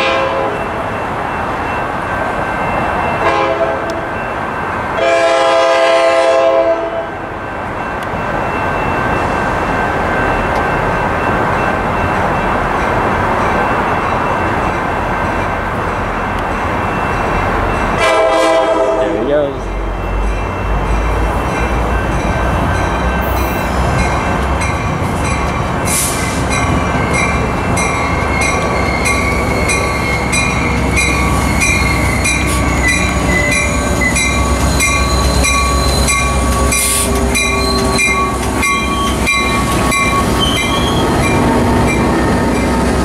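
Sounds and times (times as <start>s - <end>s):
diesel locomotive rumbling: 0.0s - 43.0s
wheel and brake squeal: 28.2s - 30.5s, 31.2s - 41.4s.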